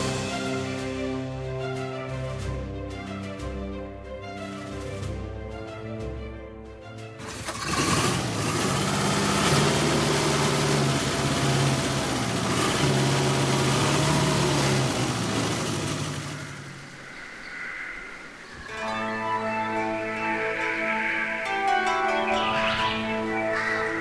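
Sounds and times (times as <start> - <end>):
car engine starting and running: 6.8 - 17.7.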